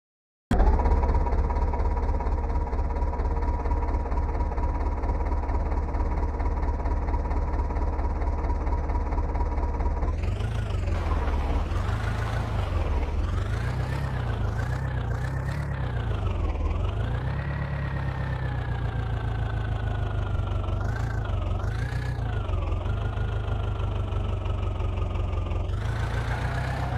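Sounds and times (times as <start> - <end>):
diesel tractor engine revving: 9.0 - 26.9.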